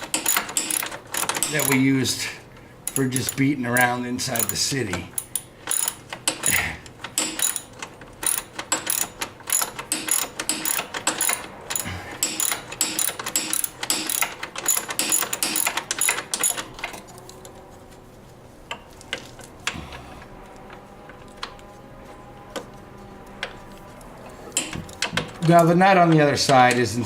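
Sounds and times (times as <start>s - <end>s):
ratchet wrench clicking: 5.2s - 6.5s.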